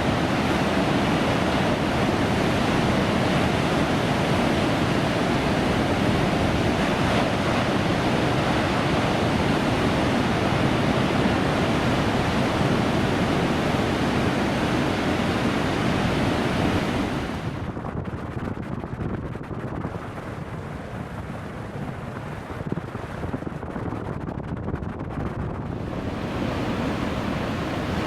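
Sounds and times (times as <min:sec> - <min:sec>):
breaking waves: 0:00.0 - 0:17.7, 0:25.7 - 0:28.0
wind: 0:00.0 - 0:28.0.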